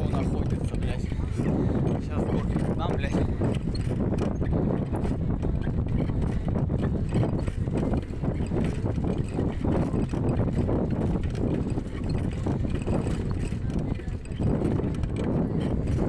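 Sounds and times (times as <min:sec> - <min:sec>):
bicycle rattling and knocking: 0:00.0 - 0:16.0
road and wind rumble: 0:00.0 - 0:16.0.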